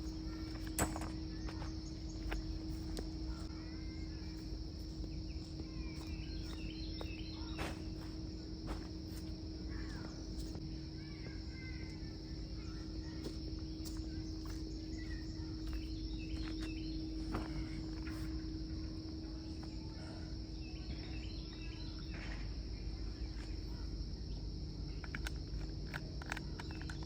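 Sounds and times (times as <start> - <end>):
bird chirps: 0.0 - 8.2
low hum: 0.0 - 21.6
insect drone: 0.0 - 27.0.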